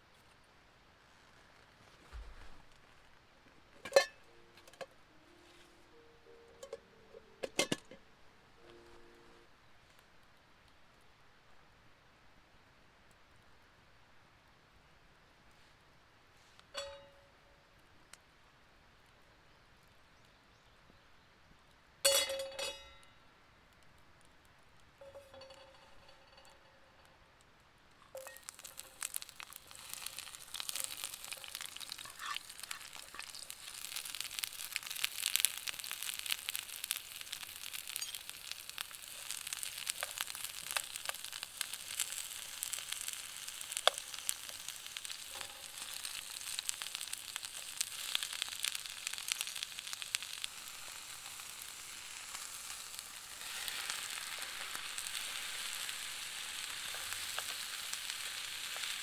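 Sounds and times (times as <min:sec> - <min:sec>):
food sizzling in a pan: 0:28.1 - 0:59.0.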